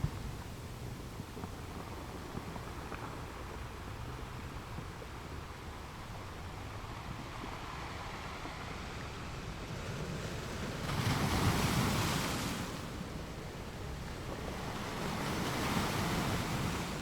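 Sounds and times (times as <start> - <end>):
sea waves washing: 5.5 - 17.0.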